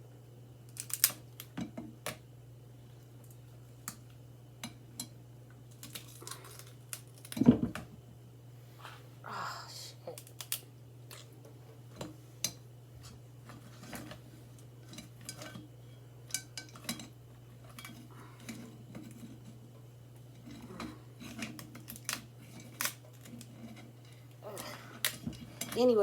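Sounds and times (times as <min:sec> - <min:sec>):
steady low hum: 0:00.0 - 0:26.0
utensils and dishes clinking: 0:14.8 - 0:15.7, 0:16.3 - 0:19.5.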